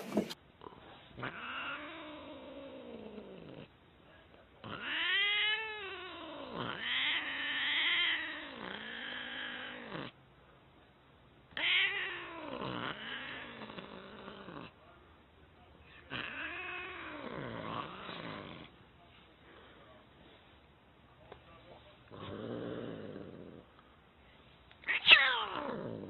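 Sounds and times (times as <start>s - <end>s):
cat yowling: 4.7s - 9.8s, 11.6s - 13.5s, 24.9s - 25.9s.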